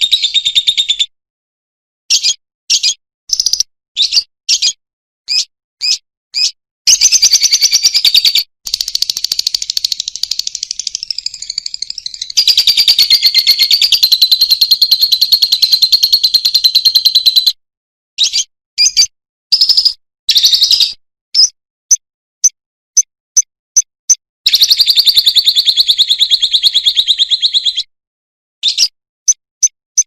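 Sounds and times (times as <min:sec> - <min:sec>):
lovebird chirping and trilling: 0:00.0 - 0:01.2, 0:02.1 - 0:17.6, 0:18.2 - 0:22.0, 0:23.8 - 0:27.9, 0:28.6 - 0:30.0.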